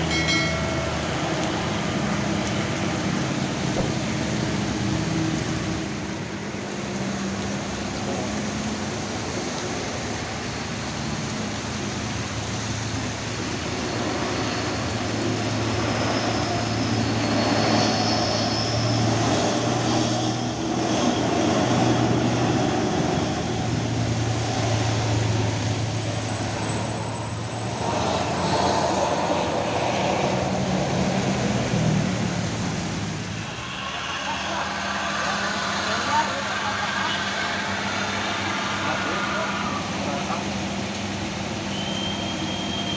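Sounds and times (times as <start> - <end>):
heavy truck diesel engines labouring: 0.0 - 42.9
heavy rain on wet road: 1.2 - 17.8.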